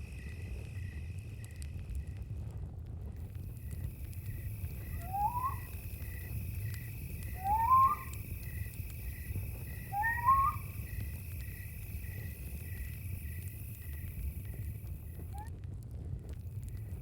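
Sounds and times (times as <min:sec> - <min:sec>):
crickets chirping: 0:00.0 - 0:02.3, 0:03.2 - 0:15.5, 0:16.4 - 0:17.0
animal whistled calls: 0:04.8 - 0:05.8, 0:07.2 - 0:08.4, 0:09.7 - 0:11.0.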